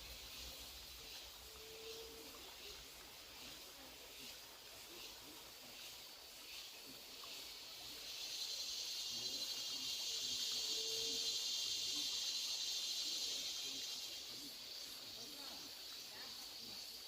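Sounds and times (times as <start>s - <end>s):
cicada buzzing: 7.4s - 17.0s.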